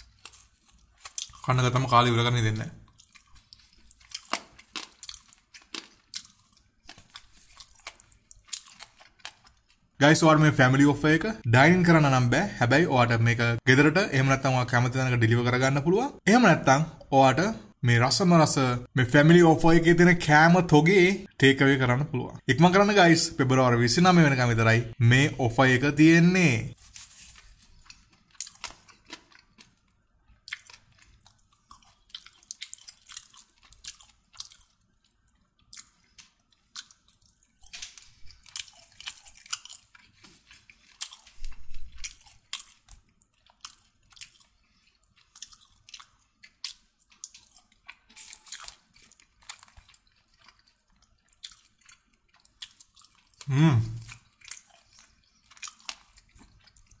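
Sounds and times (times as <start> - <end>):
person chewing food: 0.0 - 1.6, 2.7 - 10.0, 26.7 - 57.0.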